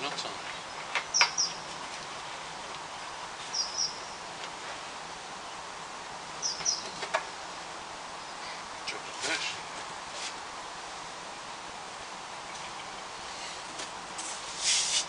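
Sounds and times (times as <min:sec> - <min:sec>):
steady outdoor hiss: 0:00.0 - 0:15.0
small bird chirping: 0:00.5 - 0:01.6, 0:02.9 - 0:04.2, 0:06.4 - 0:07.0.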